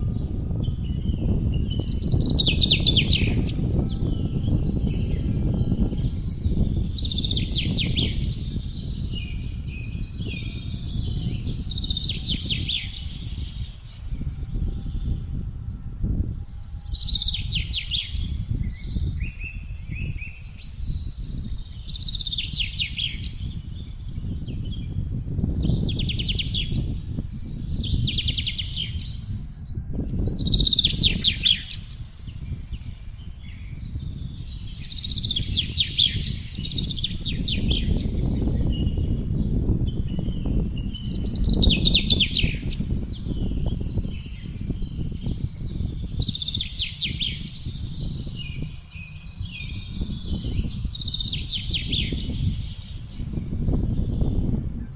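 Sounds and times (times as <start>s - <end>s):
songbirds trilling: 0.0s - 54.9s
wind blowing low rumble: 0.0s - 54.9s.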